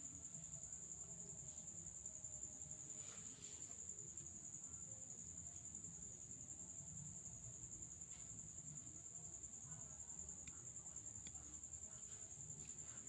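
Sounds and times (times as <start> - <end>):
faint ticks: 10.3 - 13.0.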